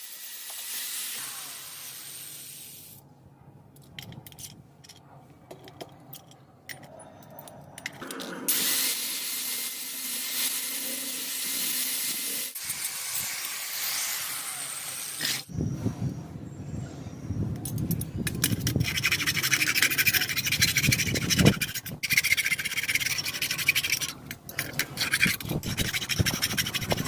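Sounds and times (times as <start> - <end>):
welding arc sizzling hiss: 0.0 - 3.0.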